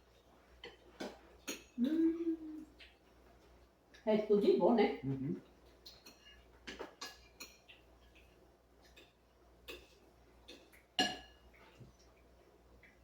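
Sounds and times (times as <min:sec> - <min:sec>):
spoons clinking against dishes: 0:05.8 - 0:11.7.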